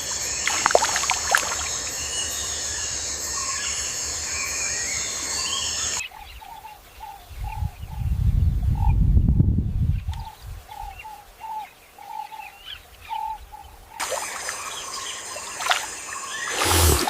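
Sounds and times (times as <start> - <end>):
high insect drone: 0.0 - 6.0, 14.0 - 17.0
wild birds chirping: 0.0 - 9.0, 9.8 - 17.0.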